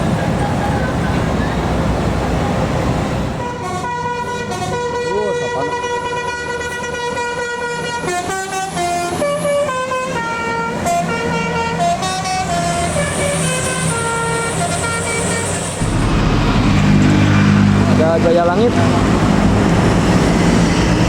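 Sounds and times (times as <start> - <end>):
bus engine running: 0.0 - 4.9, 6.2 - 21.0
multi-tone bus horn playing tune: 3.2 - 15.9.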